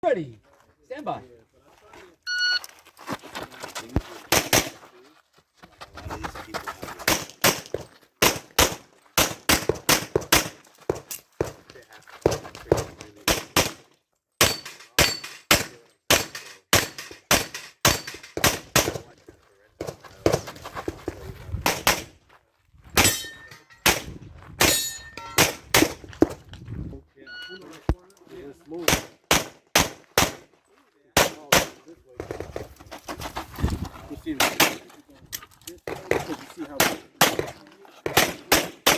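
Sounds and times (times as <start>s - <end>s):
shot timer beep: 2.3s - 2.6s
pistol shots: 7.1s - 10.6s, 14.4s - 19.0s, 28.9s - 30.4s, 31.2s - 32.4s, 36.8s - 38.9s
metallic ring: 23.0s - 23.8s, 24.7s - 25.4s.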